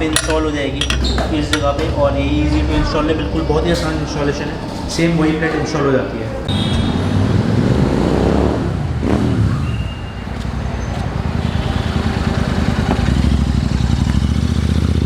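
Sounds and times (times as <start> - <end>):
motorcycle engine revving and idling: 11.2 - 15.0.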